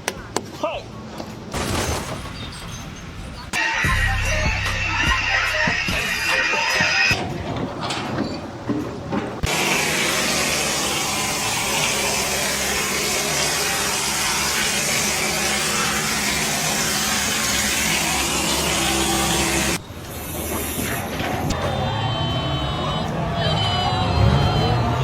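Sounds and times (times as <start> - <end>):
loud rushing machine with hum: 3.6 - 7.1, 9.4 - 19.8.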